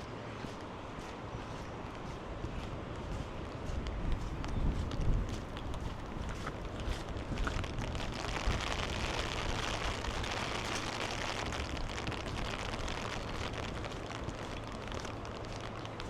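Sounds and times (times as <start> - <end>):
low rumble: 3.1 - 16.0
water hissing and pattering: 4.8 - 16.0.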